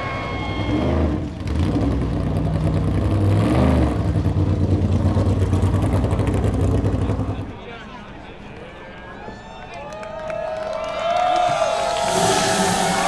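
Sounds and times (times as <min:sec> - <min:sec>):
race car engine running loud: 0:00.0 - 0:07.5, 0:11.6 - 0:13.0.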